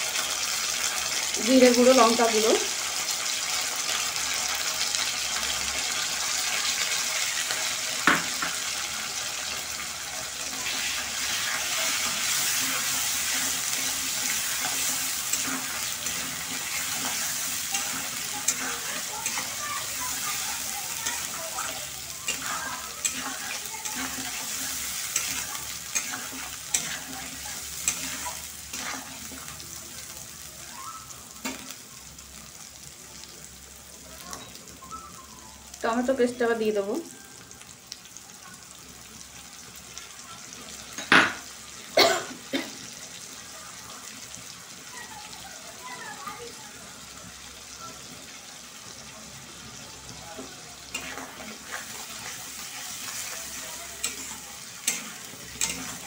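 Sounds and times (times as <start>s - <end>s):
food sizzling in hot oil: 0.0s - 56.0s
spatula tapping and scraping pan: 14.6s - 29.5s, 54.0s - 56.0s.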